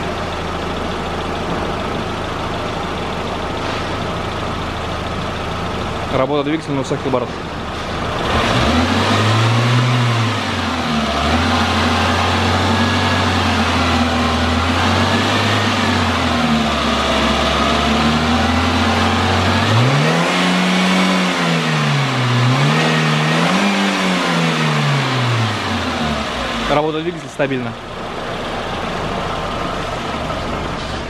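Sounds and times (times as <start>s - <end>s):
car engine revving: 6.5s - 31.0s.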